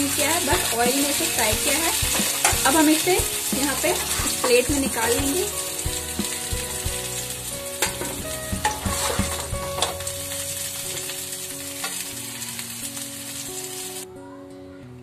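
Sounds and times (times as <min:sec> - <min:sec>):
vegetables sizzling in oil: 0:00.0 - 0:14.1
steel spatula knocking on pan: 0:01.6 - 0:02.8, 0:07.8 - 0:10.0.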